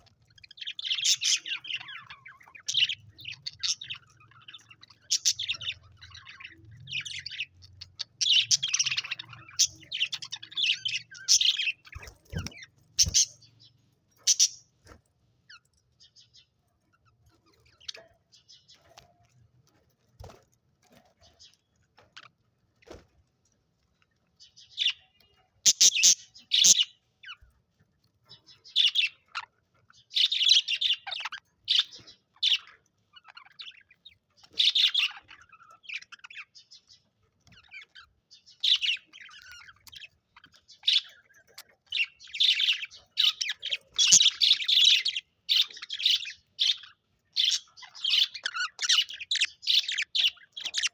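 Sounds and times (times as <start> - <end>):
budgerigars chirping: 0.0 - 14.6, 24.4 - 27.4, 28.3 - 50.9.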